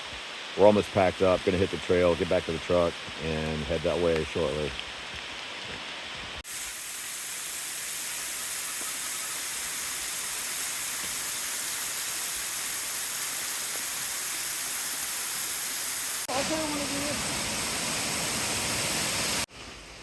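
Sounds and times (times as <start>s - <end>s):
rushing water hiss: 0.0s - 20.0s.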